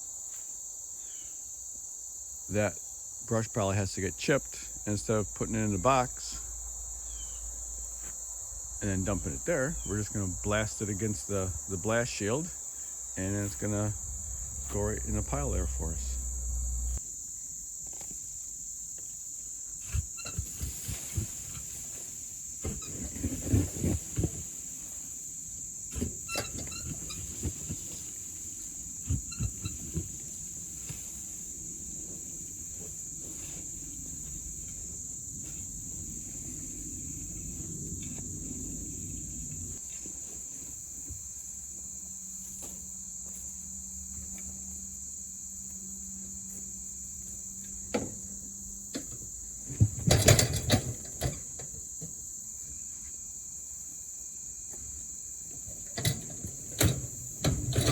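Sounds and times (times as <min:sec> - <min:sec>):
crickets trilling: 0:00.0 - 0:57.9
low rumble: 0:13.8 - 0:17.0.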